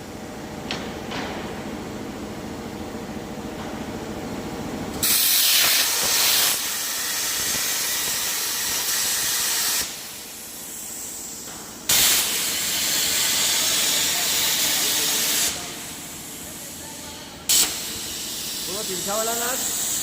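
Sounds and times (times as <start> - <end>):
plasma cutter torch hissing: 5.0 - 20.0.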